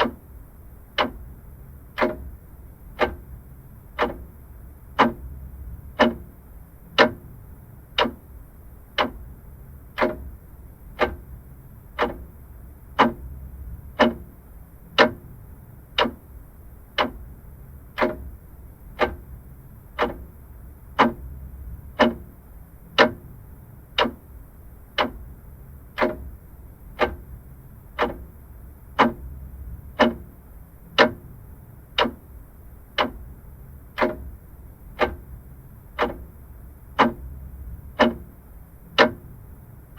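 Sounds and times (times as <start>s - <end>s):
clock ticking: 0.0s - 0.3s, 0.9s - 1.3s, 1.9s - 7.3s, 7.9s - 8.3s, 8.9s - 9.3s, 9.9s - 17.3s, 17.9s - 39.5s
faint low hum: 0.0s - 39.9s.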